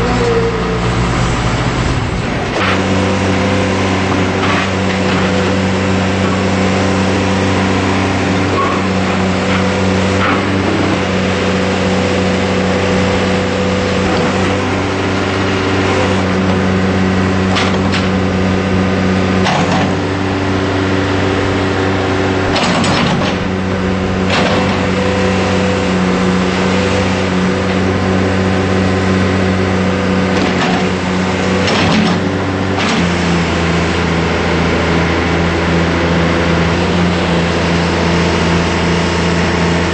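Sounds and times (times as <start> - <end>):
diesel engine running: 0.0 - 39.9
sharp knocks and clunks: 22.5 - 23.5, 31.6 - 33.1.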